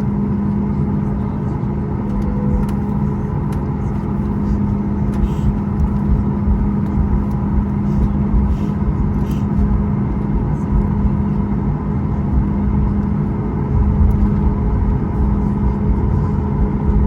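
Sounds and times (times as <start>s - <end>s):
jet engine cabin drone: 0.0s - 17.0s.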